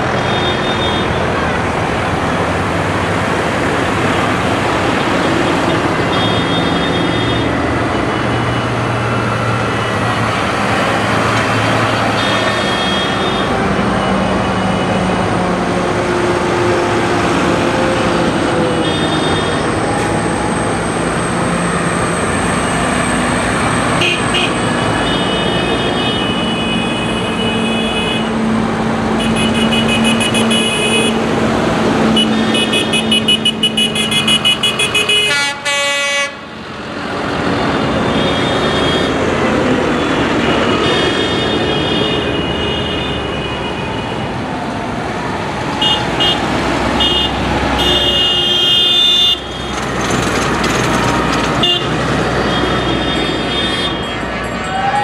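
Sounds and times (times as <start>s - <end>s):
horns honking: 0.0s - 1.5s, 4.0s - 8.9s, 9.6s - 15.4s, 18.4s - 19.8s, 23.8s - 28.4s, 29.2s - 31.3s, 32.1s - 36.5s, 37.8s - 44.3s, 45.8s - 49.9s, 51.1s - 54.9s
tractor engines passing: 0.0s - 55.0s.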